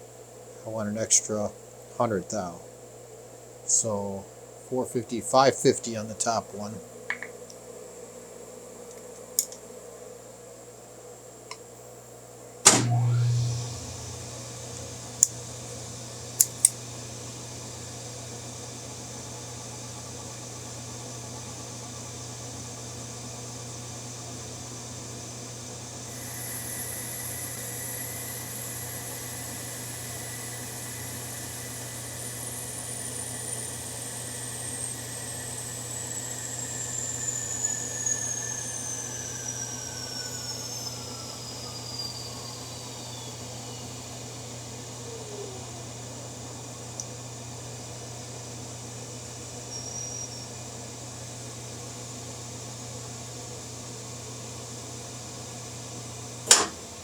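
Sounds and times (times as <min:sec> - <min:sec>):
high whine gliding down: 0:12.7 - 0:47.0
electric motor humming: 0:12.8 - 0:45.8
metal cutting noise: 0:26.1 - 0:41.5.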